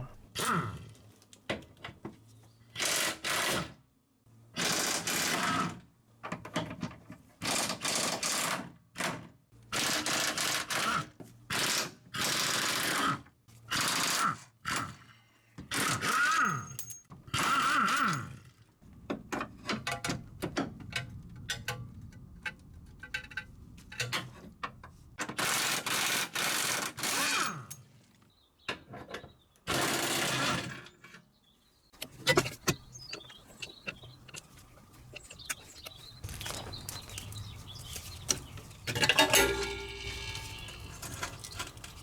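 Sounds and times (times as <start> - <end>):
metallic clicks and clinks: 32.0 - 42.0.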